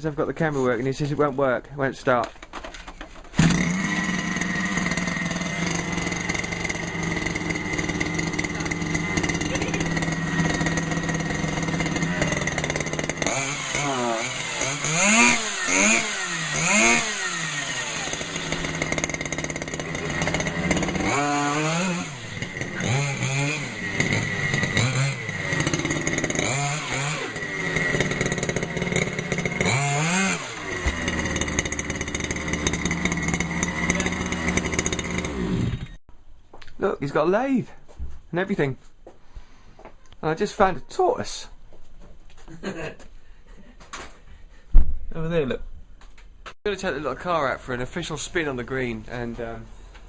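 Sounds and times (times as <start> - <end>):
small petrol engine revving: 3.3 - 36.0.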